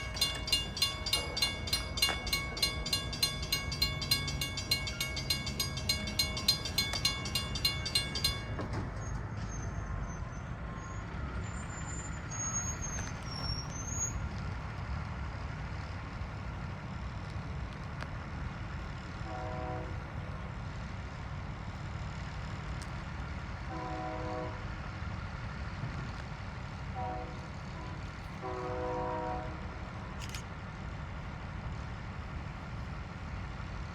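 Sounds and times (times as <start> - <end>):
crossing bell clanging: 0.0 - 9.8
diesel train rumble: 0.0 - 33.9
locomotive horn blasts: 19.2 - 20.0, 23.7 - 24.6, 27.0 - 29.8.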